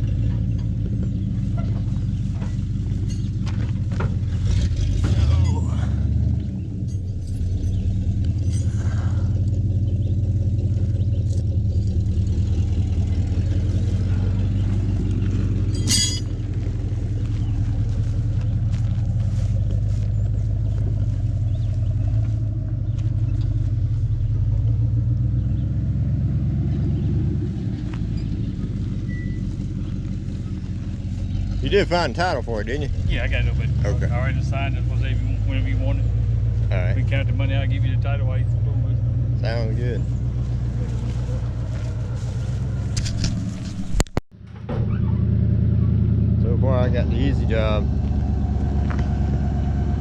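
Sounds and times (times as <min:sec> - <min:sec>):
vehicle engine idling: 0:00.0 - 0:50.0
sharp clatter: 0:00.1 - 0:05.8, 0:10.6 - 0:21.7.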